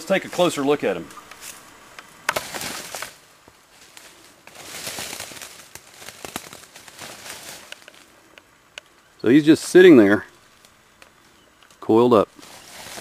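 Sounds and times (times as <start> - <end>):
twigs snapping: 1.1 - 9.0
footsteps crunching through dry leaves: 2.4 - 8.1, 12.3 - 13.0.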